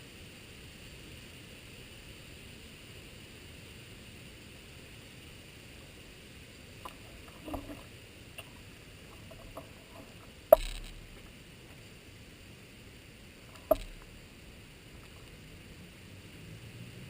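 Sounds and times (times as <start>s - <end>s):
faint clicks and rustles: 6.8s - 15.8s
sharp crack: 10.5s - 11.3s.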